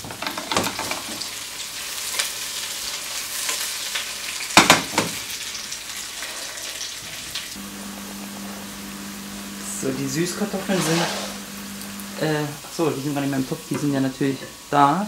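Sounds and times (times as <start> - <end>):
fennel sizzling in a wok: 0.1 - 15.0
wok scraping knocks: 10.6 - 11.5.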